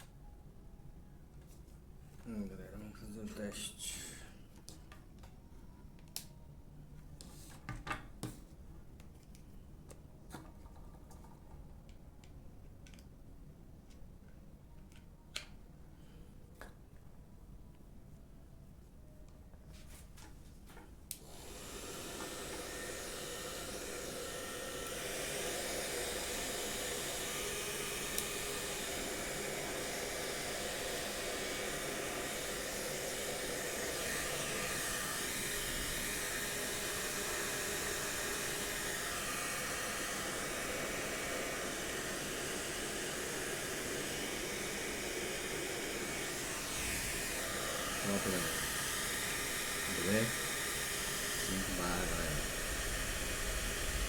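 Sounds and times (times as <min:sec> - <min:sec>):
hair dryer fan rushing air: 0:21.1 - 0:54.0
hair dryer switch clicks: 0:28.0 - 0:28.4.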